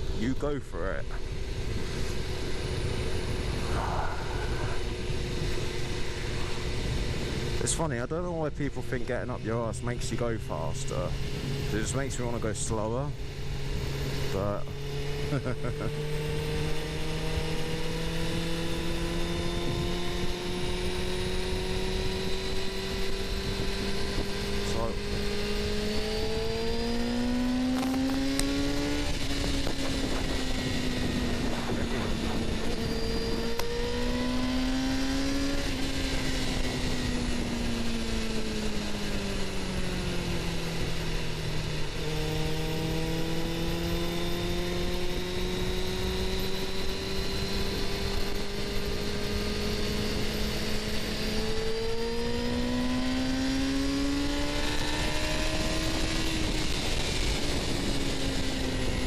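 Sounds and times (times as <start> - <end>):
motorcycle engine riding: 0.0 - 59.0
wind rushing: 3.0 - 7.2.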